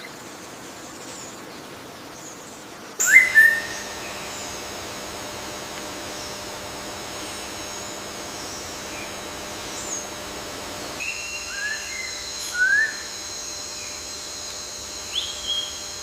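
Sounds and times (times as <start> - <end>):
whistled bird calls: 3.0 - 6.4
steady hiss: 3.1 - 16.0.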